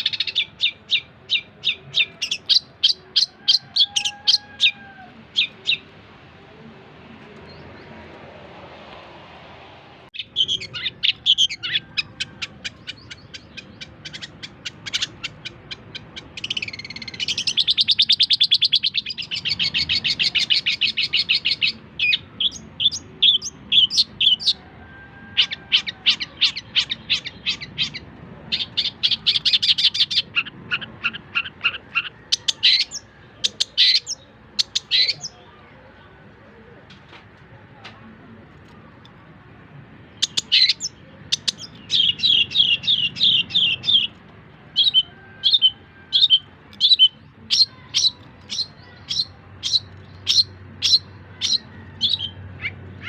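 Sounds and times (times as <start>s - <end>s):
bird singing chattering trills: 10.1s - 24.6s, 28.6s - 35.5s, 40.1s - 53.0s.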